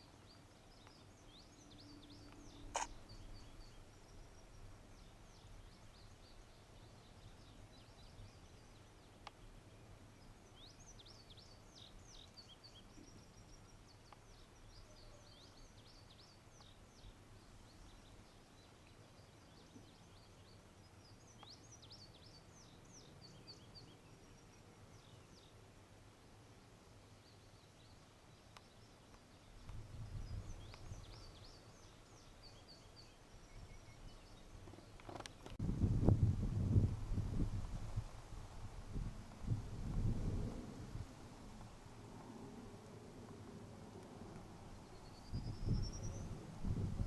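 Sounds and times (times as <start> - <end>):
songbird chirping: 0.0 - 35.6, 43.3 - 47.0
faint tick: 9.2 - 9.4, 14.0 - 14.3, 28.5 - 29.8.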